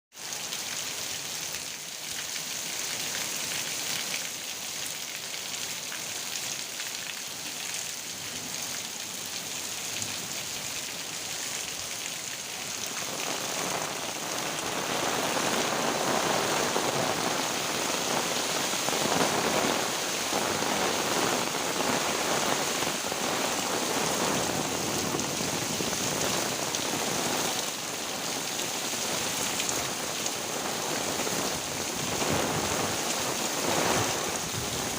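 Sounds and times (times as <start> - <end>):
heavy rain falling: 0.1 - 34.9.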